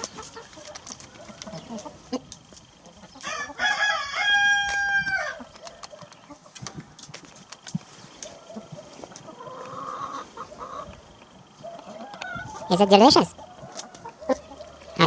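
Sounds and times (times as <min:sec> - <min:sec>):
rooster crowing: 0:03.2 - 0:05.5.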